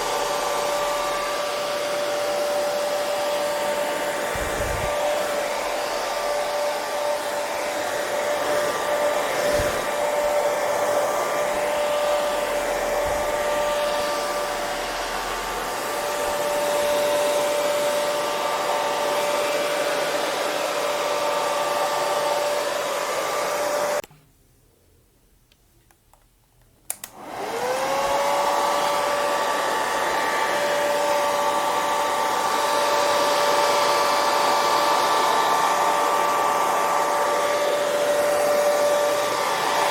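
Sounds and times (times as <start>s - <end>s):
hair dryer running: 0.0s - 24.0s, 26.9s - 39.9s
hair dryer switch clicks: 25.5s - 27.4s.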